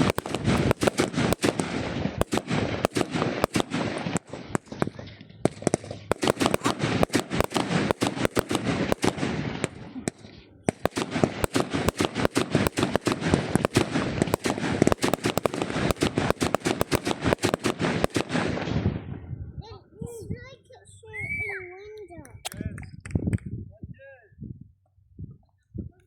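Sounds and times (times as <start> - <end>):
fireworks cracking: 0.0 - 19.1.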